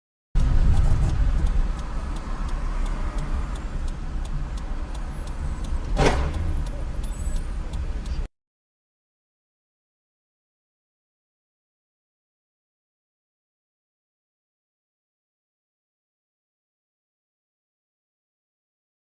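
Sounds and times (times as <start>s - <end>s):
car driving rumble: 0.4s - 8.3s
faint regular ticking: 0.4s - 8.3s
loud thump: 6.0s - 6.4s.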